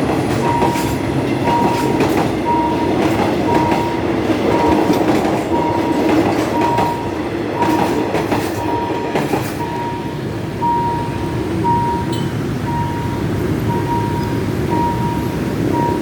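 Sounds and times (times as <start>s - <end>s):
train wheels clicking over rail joints: 0.0s - 10.1s
train rumble: 0.0s - 16.0s
crossing warning signal beeping: 0.2s - 16.0s.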